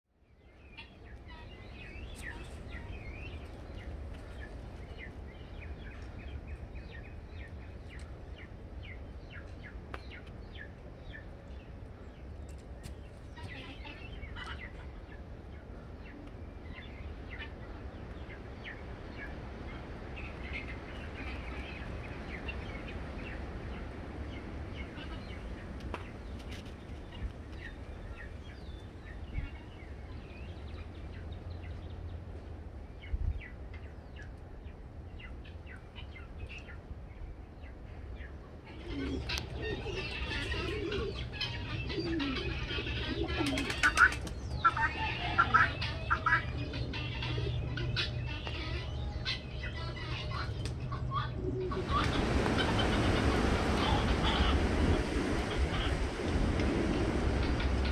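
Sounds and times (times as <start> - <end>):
birds chirping and calling: 0.6 - 32.3, 37.5 - 57.9
steady low rumble: 44.2 - 57.9.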